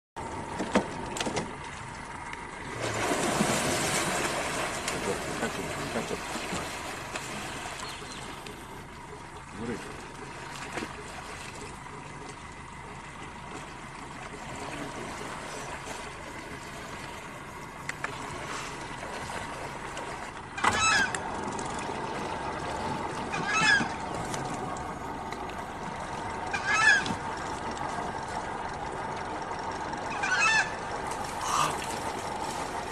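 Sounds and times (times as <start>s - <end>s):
background hiss and hum: 0.2s - 32.9s
bird honking call: 20.5s - 21.4s, 23.1s - 24.5s, 26.3s - 27.4s, 29.5s - 32.1s.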